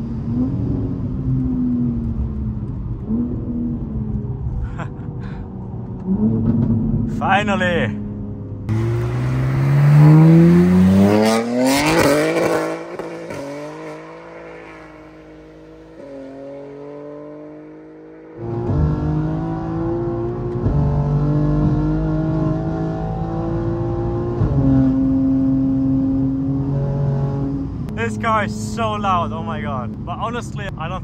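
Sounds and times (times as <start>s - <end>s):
car engine from inside cabin: 0.0s - 30.5s
car accelerating past: 8.7s - 27.5s.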